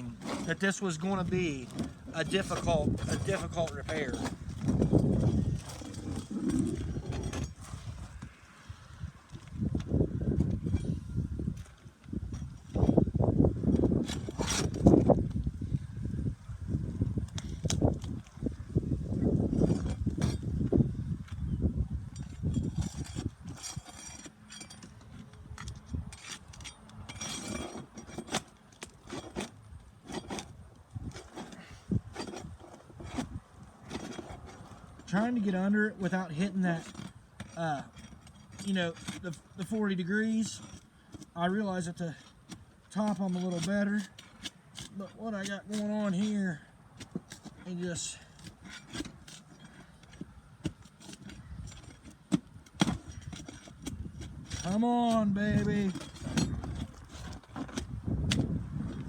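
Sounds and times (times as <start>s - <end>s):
hand tool scraping under shingles: 0.0s - 59.0s.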